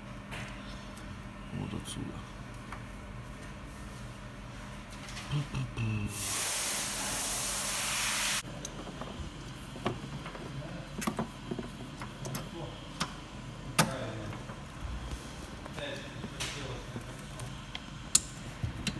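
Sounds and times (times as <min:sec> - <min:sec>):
hissing air burst: 0:06.1 - 0:08.4.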